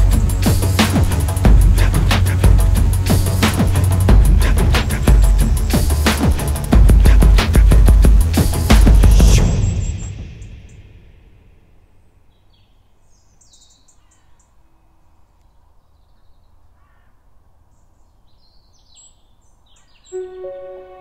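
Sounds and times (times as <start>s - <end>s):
faint bird calls: 12.3s - 20.5s.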